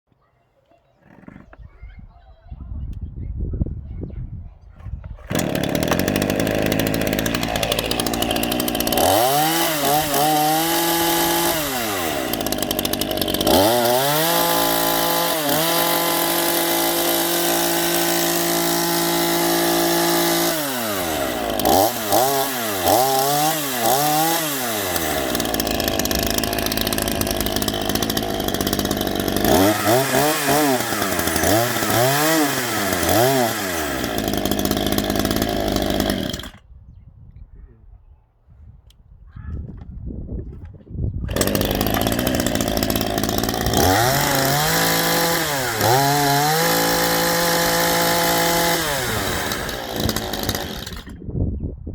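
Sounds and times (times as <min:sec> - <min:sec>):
chainsaw revving: 0:05.2 - 0:36.6, 0:41.3 - 0:51.2.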